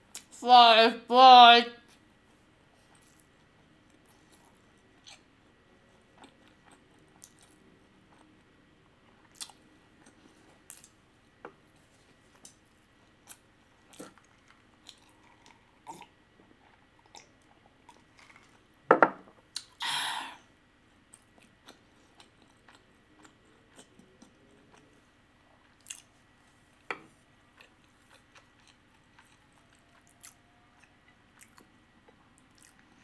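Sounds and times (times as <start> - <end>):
wet chewing: 13.2 - 16.1, 16.7 - 18.6, 25.7 - 26.1, 27.5 - 33.0.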